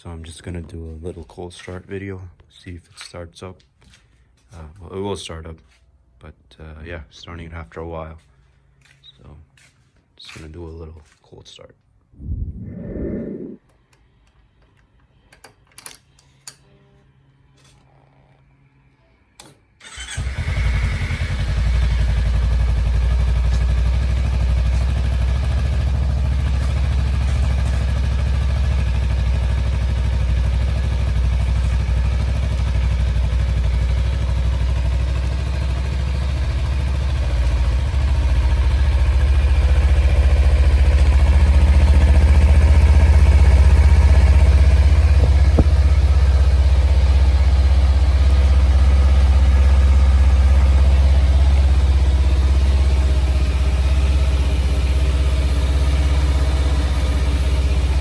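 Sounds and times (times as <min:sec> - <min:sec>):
motorcycle engine idling: 0:19.9 - 0:58.0.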